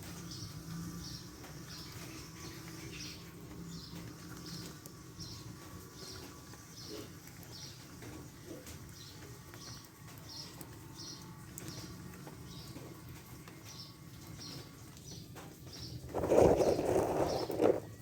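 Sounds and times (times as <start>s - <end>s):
small bird chirping: 13.6s - 18.0s.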